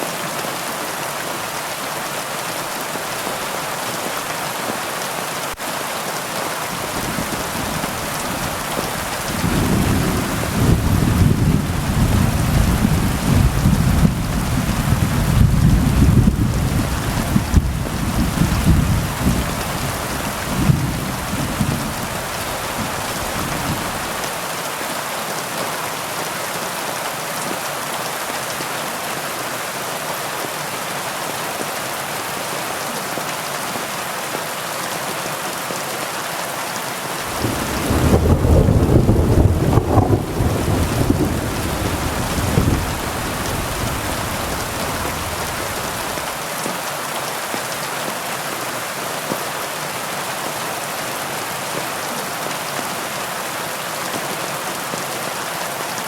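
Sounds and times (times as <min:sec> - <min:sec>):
heavy rain: 0:00.0 - 0:56.0
thunder rumbling: 0:06.8 - 0:24.3, 0:37.3 - 0:46.3.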